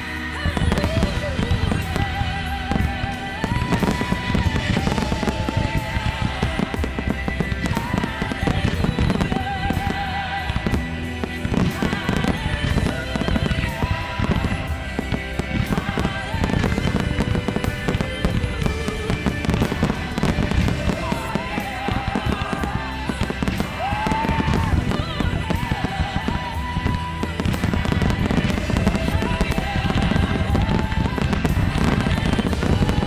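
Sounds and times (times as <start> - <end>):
fireworks bangs and crackle: 0.0 - 33.0
music with melody: 0.0 - 33.0.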